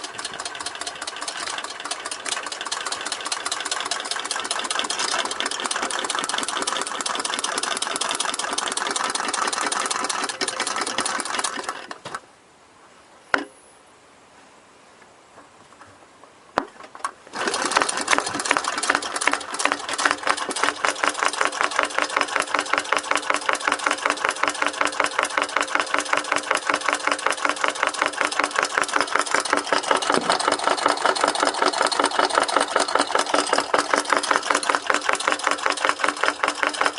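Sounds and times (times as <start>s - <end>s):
small engine clattering: 0.0s - 12.2s, 16.8s - 36.9s.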